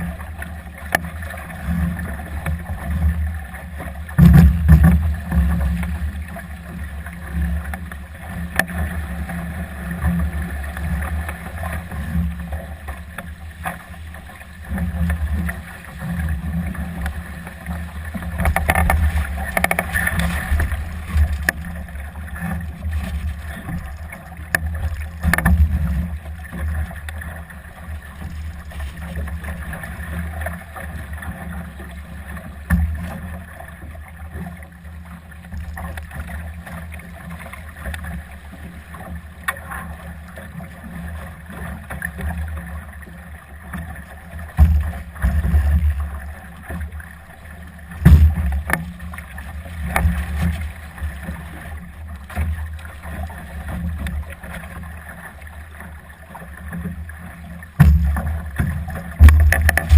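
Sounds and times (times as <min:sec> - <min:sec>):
water rushing along hull: 0:00.0 - 0:59.9
wind rumble on microphone: 0:57.8 - 0:59.9.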